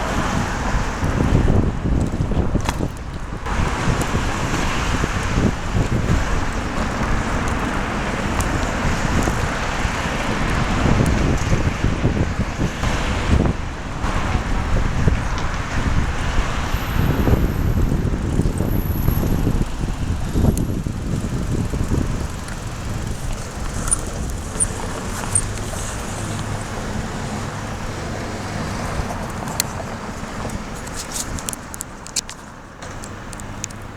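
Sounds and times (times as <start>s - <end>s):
low engine hum: 0.0s - 33.9s
street traffic: 0.0s - 33.9s
wind buffeting microphone: 0.0s - 33.9s.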